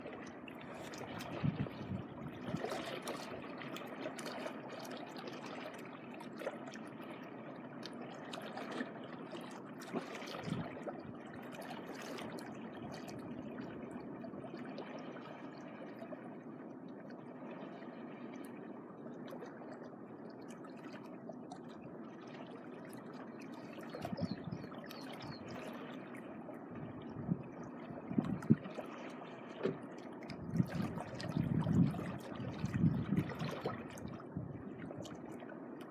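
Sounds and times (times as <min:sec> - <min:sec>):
small waves washing on shore: 0:00.0 - 0:07.2.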